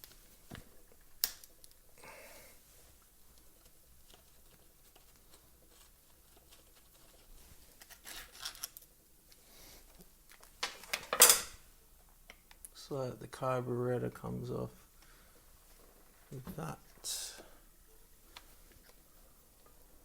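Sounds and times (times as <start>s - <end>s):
faint clicks of small parts: 0.0s - 2.0s, 3.0s - 12.8s.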